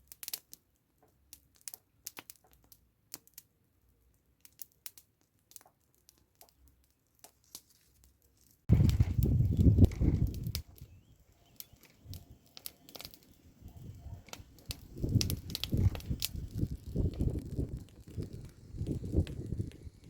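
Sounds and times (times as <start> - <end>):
twigs cracking: 4.9 - 20.0.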